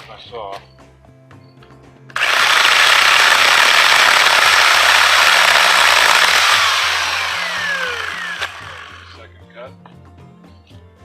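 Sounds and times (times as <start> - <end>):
electric chainsaw cutting branch: 2.2 - 9.2.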